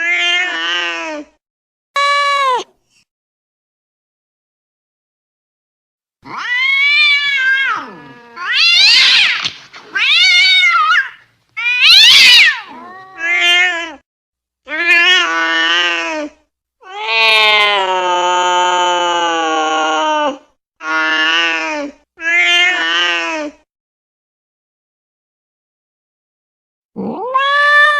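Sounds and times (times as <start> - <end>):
angry cat yowling: 6.2 - 14.0, 16.8 - 21.6, 27.0 - 27.9.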